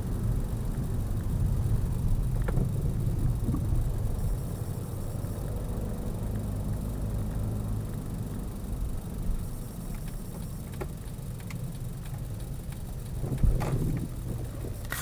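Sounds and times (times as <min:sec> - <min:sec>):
car engine and road noise: 0:00.0 - 0:15.0
faint clicks: 0:09.3 - 0:15.0.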